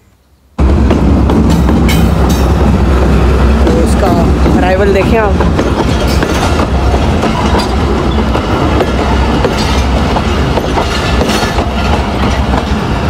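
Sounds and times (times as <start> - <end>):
train wheels rumbling on rails: 0.6 - 13.0.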